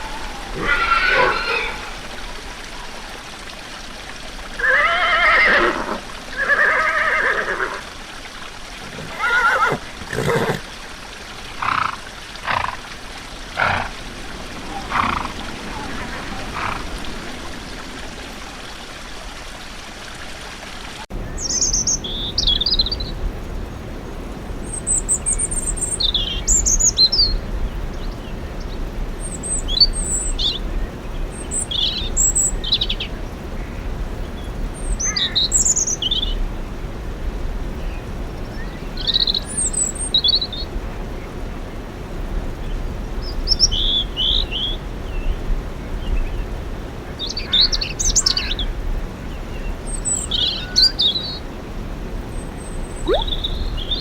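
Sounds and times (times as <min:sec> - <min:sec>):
horse whinnying: 0:00.0 - 0:02.1, 0:04.6 - 0:07.8, 0:08.9 - 0:10.6
small birds chirping: 0:00.0 - 0:03.8, 0:21.1 - 0:36.5, 0:37.7 - 0:41.2, 0:42.6 - 0:51.6, 0:52.2 - 0:54.0.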